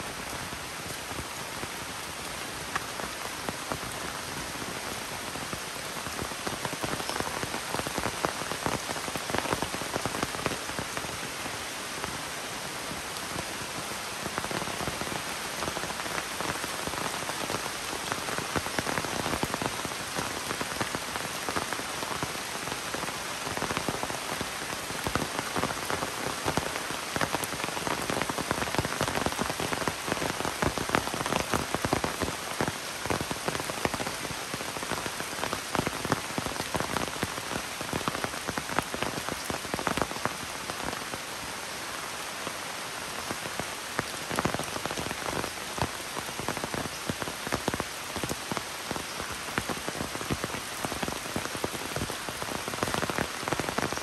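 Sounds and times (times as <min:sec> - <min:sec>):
rain falling on foliage: 0:00.0 - 0:54.0.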